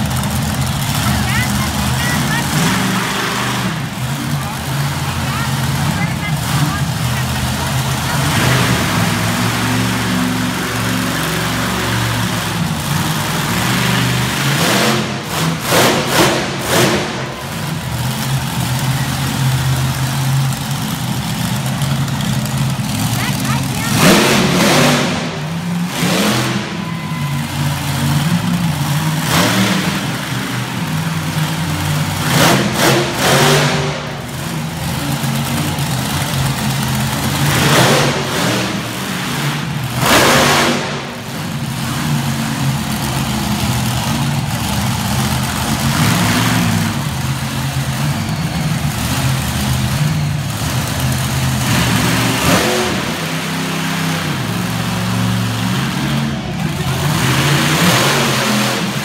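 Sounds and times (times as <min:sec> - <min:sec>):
truck engine revving: 0:00.0 - 0:59.0.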